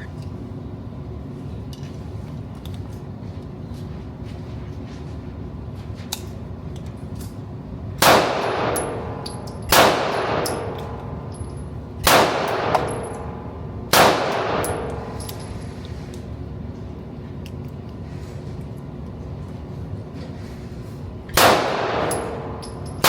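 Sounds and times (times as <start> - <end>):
gunshots: 21.4 - 22.1.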